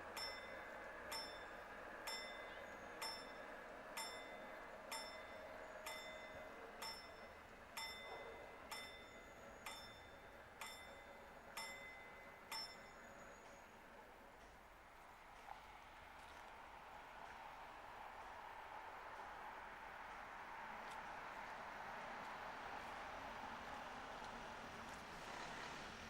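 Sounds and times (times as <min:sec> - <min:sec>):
level crossing warning bell: 0:00.1 - 0:14.0.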